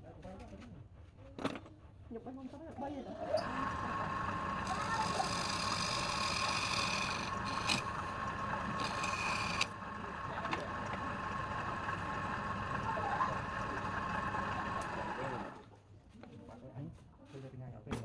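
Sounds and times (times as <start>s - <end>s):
wood lathe whining: 3.3s - 15.6s
turning tool scraping wood: 4.6s - 9.8s.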